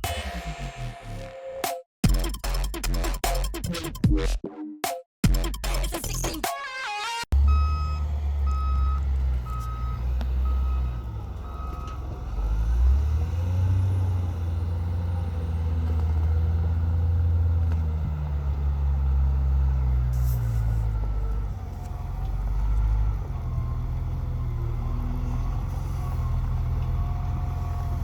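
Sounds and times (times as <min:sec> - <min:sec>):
large vehicle engine rumbling: 0:07.3 - 0:28.0
reversing alarm beeping: 0:07.4 - 0:12.0.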